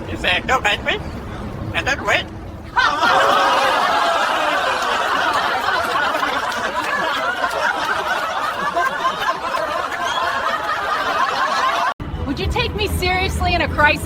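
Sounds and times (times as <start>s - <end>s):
crowd laughing: 2.6s - 12.0s.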